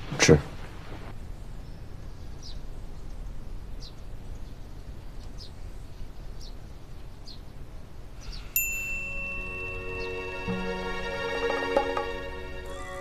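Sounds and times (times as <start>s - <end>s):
bright chime: 8.6s - 13.0s
background music: 9.4s - 13.0s.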